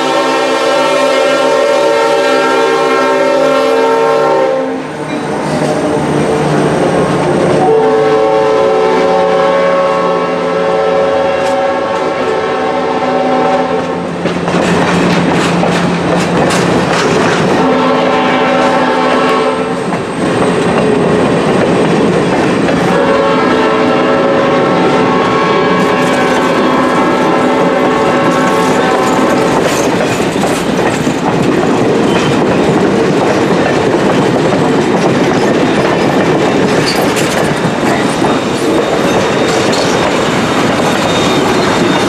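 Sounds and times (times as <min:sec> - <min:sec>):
steam locomotive whistle blasts: 0:00.0 - 0:05.2, 0:07.4 - 0:14.0, 0:17.5 - 0:19.8, 0:22.8 - 0:29.6, 0:38.7 - 0:42.0
passing train rushing and rattling: 0:00.0 - 0:42.0.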